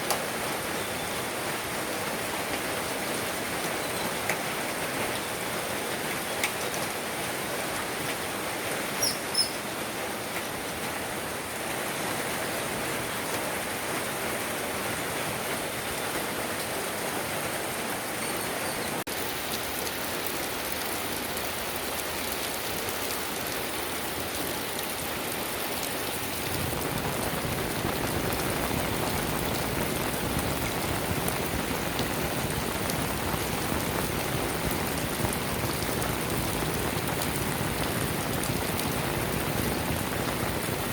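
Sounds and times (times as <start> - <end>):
steady rain falling: 0.0 - 40.9
high chirps: 9.0 - 9.6.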